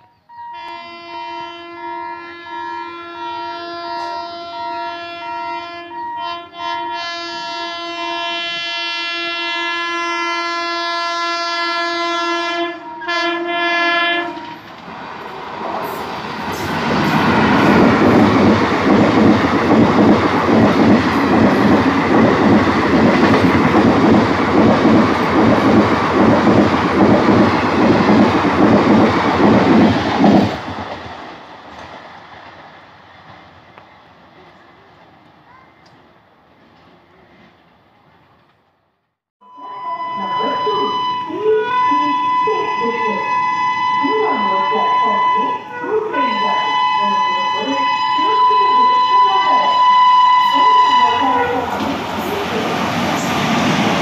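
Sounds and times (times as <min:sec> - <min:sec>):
train horn blast: 0:00.3 - 0:14.7, 0:39.4 - 0:51.8.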